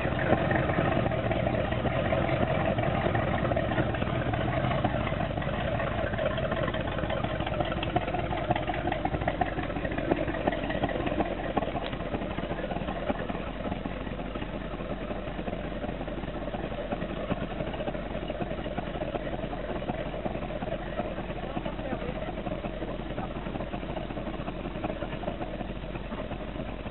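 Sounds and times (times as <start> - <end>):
boat engine running at low throttle: 0.0 - 26.9.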